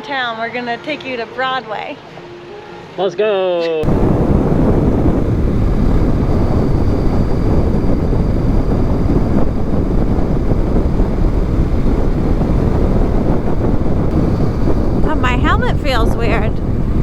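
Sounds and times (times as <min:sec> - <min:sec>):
road noise: 0:03.8 - 0:17.0
wind rushing on microphone: 0:03.8 - 0:17.0
motorcycle engine: 0:03.9 - 0:17.0.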